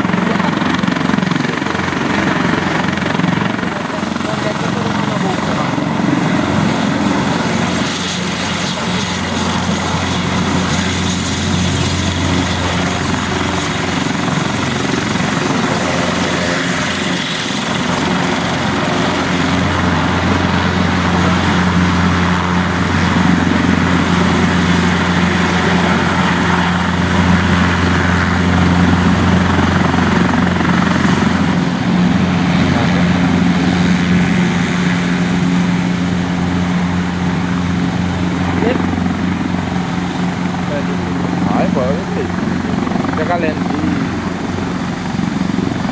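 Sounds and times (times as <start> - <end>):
helicopter engines and rotor: 0.0 - 45.9.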